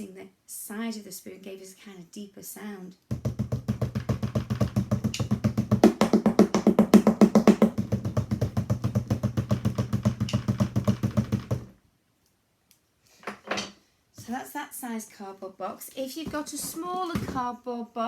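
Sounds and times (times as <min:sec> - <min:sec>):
wooden spoons drumming on cardboard box: 0:03.1 - 0:11.8.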